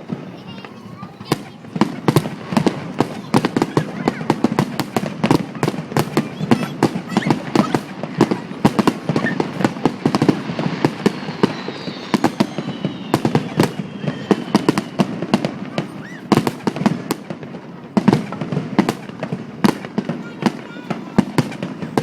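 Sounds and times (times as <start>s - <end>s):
fireworks bangs: 0.0s - 22.0s
faint high falling whistle: 9.2s - 16.3s.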